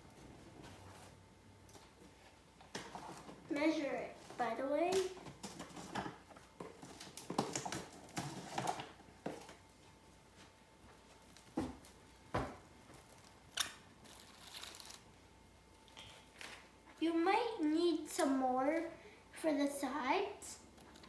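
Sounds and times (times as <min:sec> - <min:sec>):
plastic cling wrap crinkling: 0:12.7 - 0:15.2.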